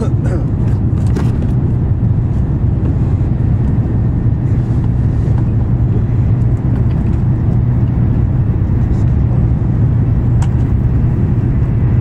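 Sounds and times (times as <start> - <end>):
train rumble and hum in cabin: 0.0 - 12.0.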